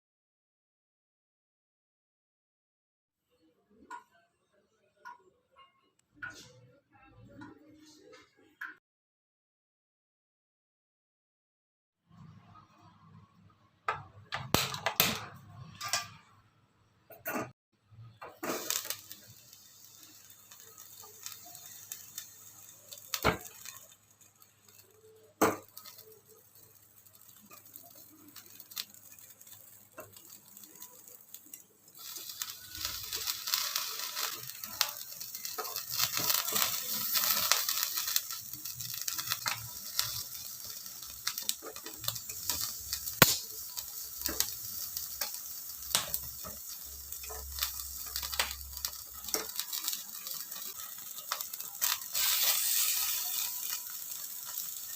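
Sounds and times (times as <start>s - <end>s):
food sizzling in hot fat: 13.9s - 16.3s, 17.9s - 54.9s.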